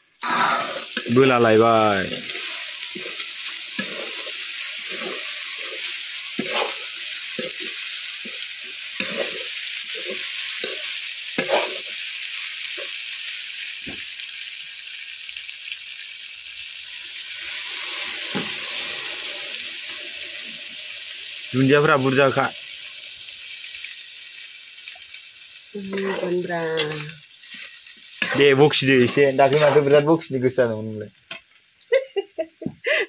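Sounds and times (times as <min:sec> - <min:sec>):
chicken sizzling in a pan: 0:00.0 - 0:33.0
metal spatula scraping: 0:00.2 - 0:01.2, 0:02.0 - 0:08.4, 0:09.0 - 0:11.9, 0:26.8 - 0:30.0.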